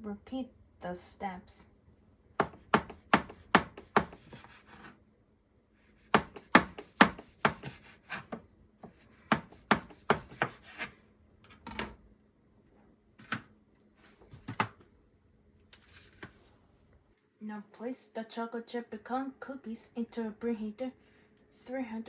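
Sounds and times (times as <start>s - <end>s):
knife slicing cookie dough: 2.4s - 5.0s, 6.0s - 11.0s.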